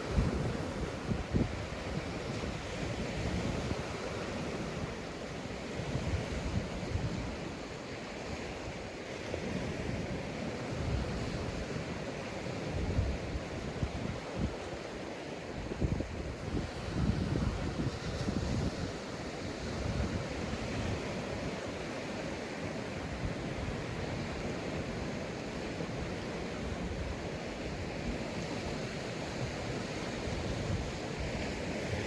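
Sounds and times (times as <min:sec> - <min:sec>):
wind buffeting microphone: 0:00.0 - 0:07.6, 0:15.5 - 0:21.8, 0:23.1 - 0:32.0
sea waves breaking on beach: 0:00.0 - 0:32.0.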